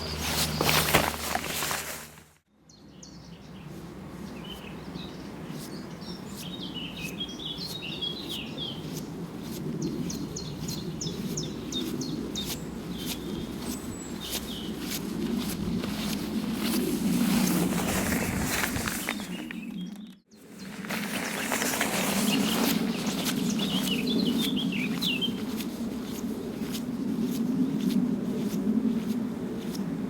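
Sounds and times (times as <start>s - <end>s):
songbirds chirping and trilling: 2.6s - 16.7s, 18.0s - 28.5s.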